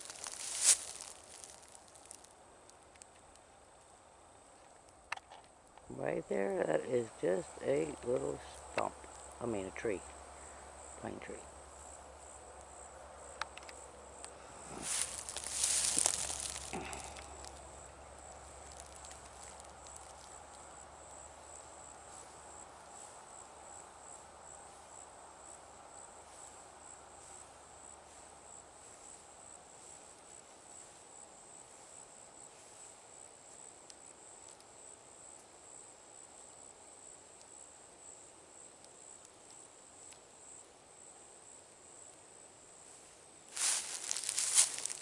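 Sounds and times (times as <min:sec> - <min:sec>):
loud rustle: 0:00.0 - 0:02.2, 0:14.6 - 0:17.6, 0:43.6 - 0:45.0
crickets trilling: 0:00.0 - 0:45.0
distant insects humming: 0:00.0 - 0:45.0.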